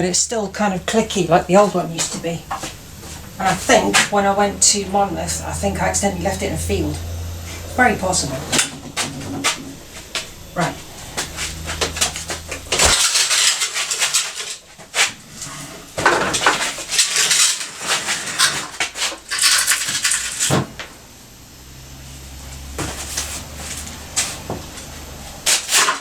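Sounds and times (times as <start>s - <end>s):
low steady hum: 0.0s - 25.5s
metal tools clattering: 7.5s - 20.6s.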